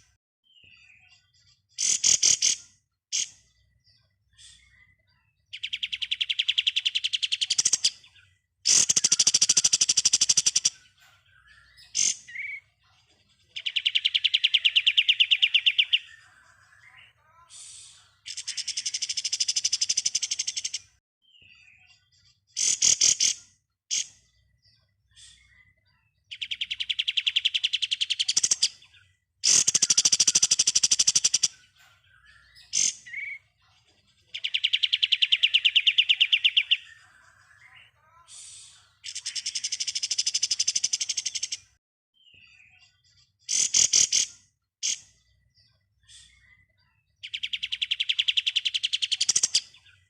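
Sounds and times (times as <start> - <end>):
bird singing rattling trills: 5.6 - 12.7, 26.3 - 33.6.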